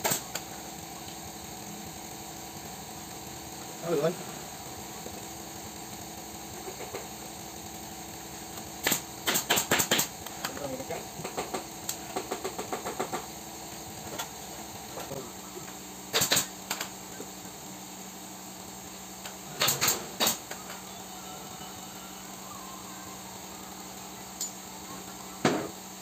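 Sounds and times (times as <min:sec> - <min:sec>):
pneumatic staple gun firing: 0:00.0 - 0:00.5, 0:08.6 - 0:10.6, 0:11.2 - 0:13.3, 0:16.1 - 0:16.9, 0:19.2 - 0:20.8
steady low hum: 0:00.0 - 0:26.0
loud sharp snaps: 0:08.8 - 0:10.1, 0:16.1 - 0:16.9.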